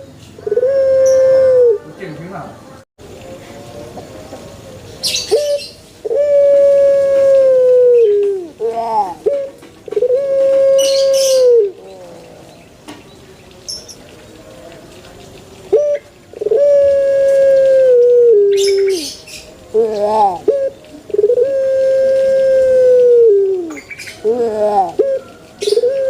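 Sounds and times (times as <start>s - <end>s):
dove cooing: 0.0s - 1.9s, 5.0s - 12.5s, 15.7s - 26.0s.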